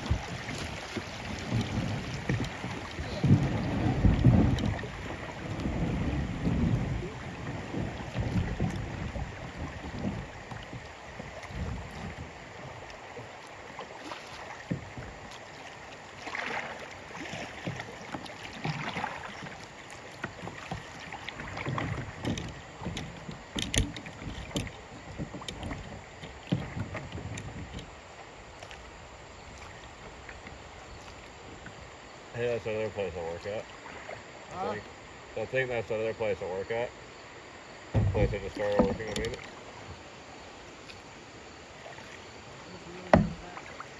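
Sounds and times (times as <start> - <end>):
wind rumble on microphone: 0.0 - 13.0
water splashing around kayak: 0.0 - 43.9.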